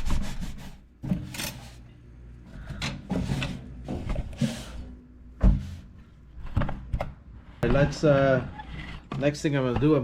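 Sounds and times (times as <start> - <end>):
objects clattering and rubbing: 2.6 - 6.9.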